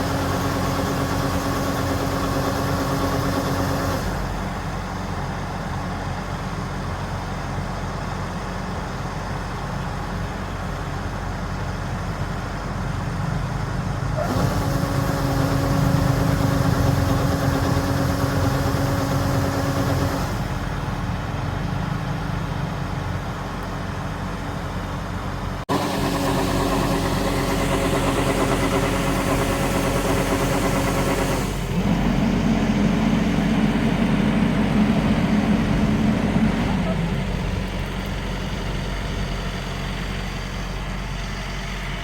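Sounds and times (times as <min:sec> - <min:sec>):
combine harvester drone: 0:00.0 - 0:42.0
high machine whine: 0:25.7 - 0:38.9.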